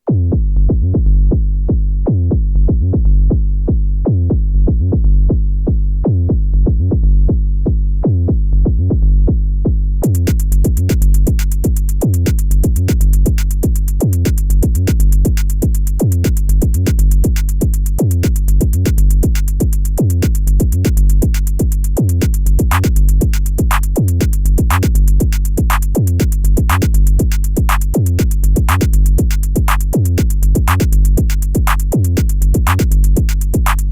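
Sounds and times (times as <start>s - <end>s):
fast high ticking: 10.0s - 33.9s.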